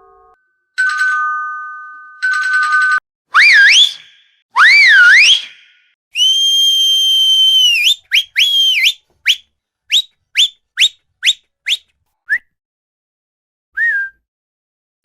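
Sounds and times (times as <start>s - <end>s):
whistle notes and chirps: 3.4s - 12.4s, 13.8s - 14.2s.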